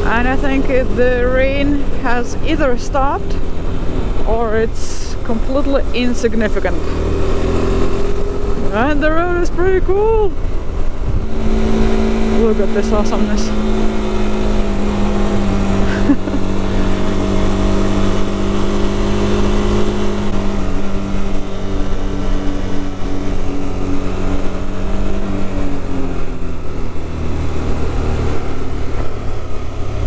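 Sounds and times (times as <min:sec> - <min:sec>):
low rumble: 0:00.0 - 0:30.0
motorcycle engine running: 0:00.0 - 0:30.0.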